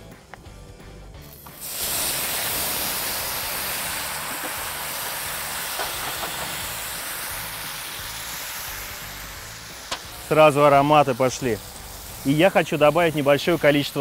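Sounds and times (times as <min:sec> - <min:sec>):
meat sizzling in hot oil: 0:01.2 - 0:14.0.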